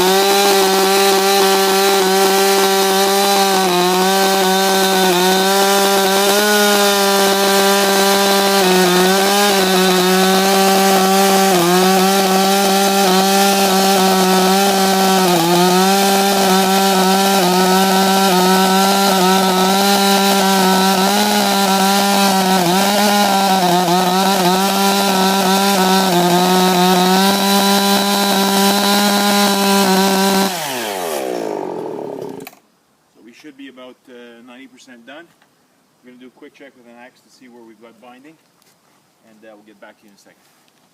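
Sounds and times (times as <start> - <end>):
chainsaw cutting log: 0.0 - 32.6.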